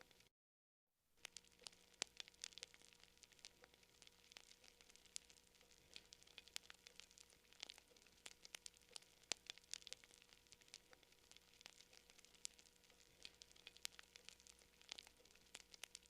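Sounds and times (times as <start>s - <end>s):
campfire crackling and popping: 1.2s - 16.0s
faint fire hiss: 1.2s - 16.0s.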